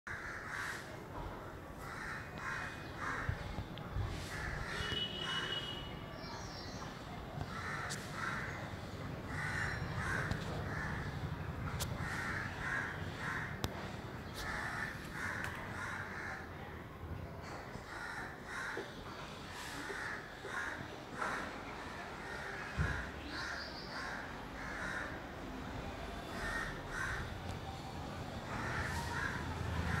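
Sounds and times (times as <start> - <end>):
birds calling harsh notes: 4.3 - 16.4, 22.2 - 25.1
low steady background rumble: 9.0 - 14.9.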